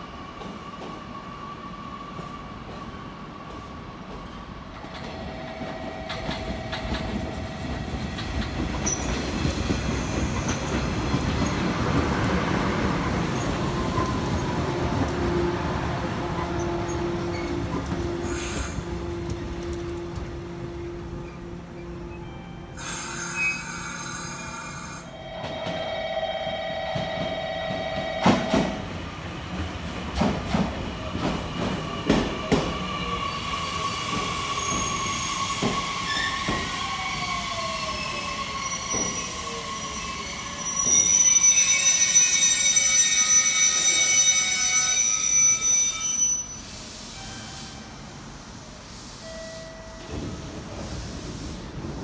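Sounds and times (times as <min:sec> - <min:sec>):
train whine: 0:04.7 - 0:52.0
wheel and brake squeal: 0:22.8 - 0:25.1, 0:33.0 - 0:47.8.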